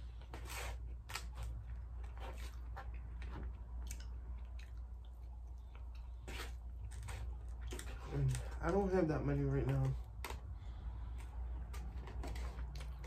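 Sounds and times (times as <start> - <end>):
plastic fork scraping foam box: 0.2 - 1.5, 11.6 - 13.0
wet chewing and lip smacking: 1.5 - 7.9.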